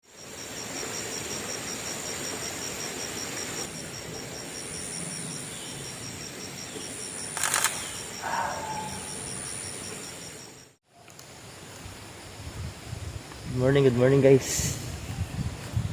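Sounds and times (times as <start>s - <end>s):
outdoor ambience: 0.0s - 15.9s
camera shutter clicks: 7.4s - 8.0s.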